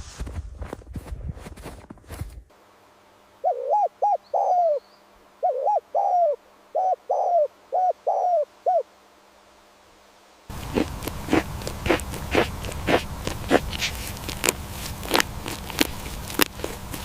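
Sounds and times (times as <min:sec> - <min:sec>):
bird calling clear notes: 0:03.4 - 0:08.9
faint high bird chirps: 0:03.4 - 0:08.9.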